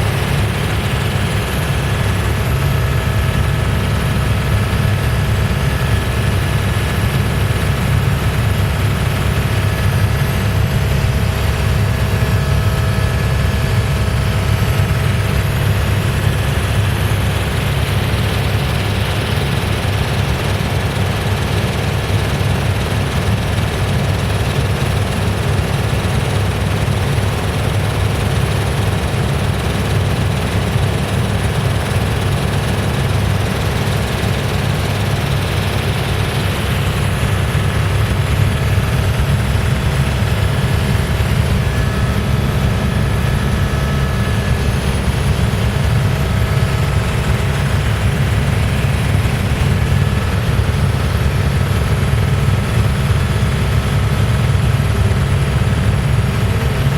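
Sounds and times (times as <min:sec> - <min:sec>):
helicopter rotor and turbine: 0:00.0 - 0:56.9.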